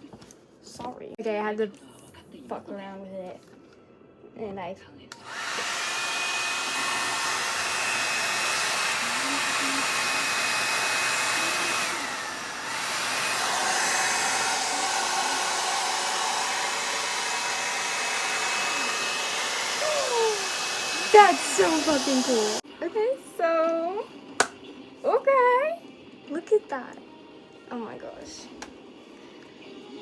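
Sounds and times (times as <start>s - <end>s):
hairdryer blowing with motor whine: 5.1s - 22.6s.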